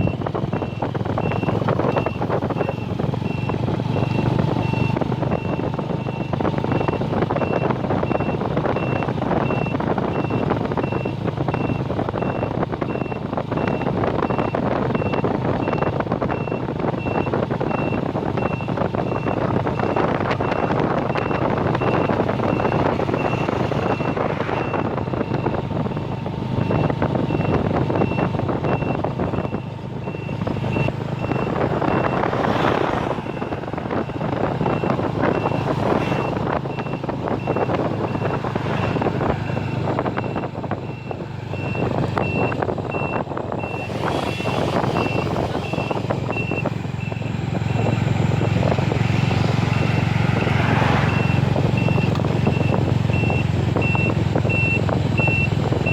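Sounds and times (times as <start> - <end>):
high electronic beeps: 20.5 - 48.0.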